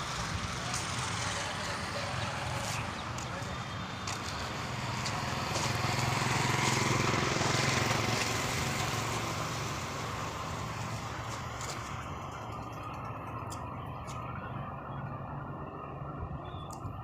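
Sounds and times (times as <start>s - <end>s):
diesel truck engine running: 0.0s - 15.5s.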